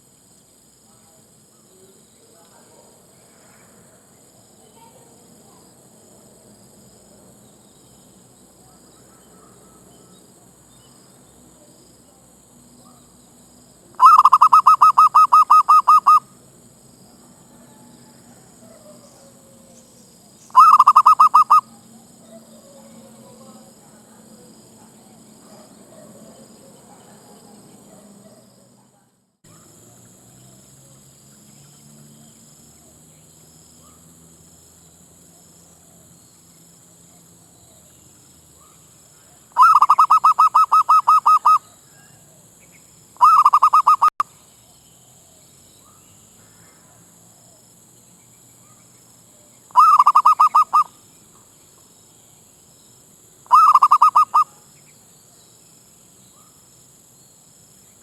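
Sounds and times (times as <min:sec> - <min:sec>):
dove staccato cooing: 0:14.0 - 0:16.2, 0:20.6 - 0:21.7, 0:39.6 - 0:41.6, 0:43.2 - 0:44.2, 0:49.8 - 0:50.9, 0:53.5 - 0:54.5.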